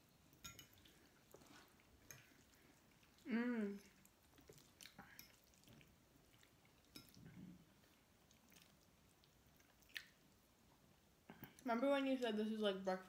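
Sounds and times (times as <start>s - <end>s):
wet chewing clicks: 1.3s - 7.2s, 7.9s - 10.3s.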